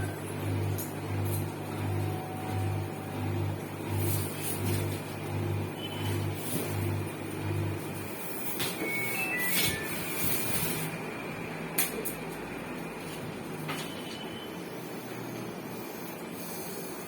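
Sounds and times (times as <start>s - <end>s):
washing machine motor humming: 0.0s - 17.0s
short electronic beeps: 8.8s - 10.5s.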